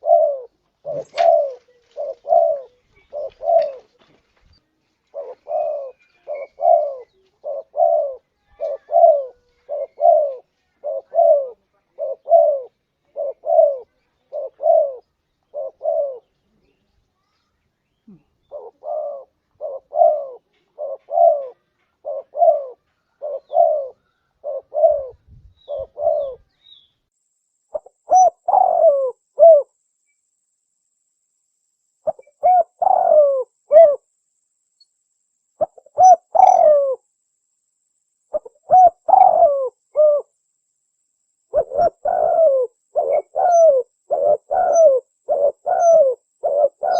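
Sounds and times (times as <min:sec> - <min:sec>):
dove cooing: 0:00.0 - 0:04.2, 0:05.1 - 0:16.5, 0:18.0 - 0:26.6, 0:27.7 - 0:29.8, 0:32.0 - 0:34.1, 0:35.6 - 0:37.1, 0:38.3 - 0:40.4, 0:41.5 - 0:46.9.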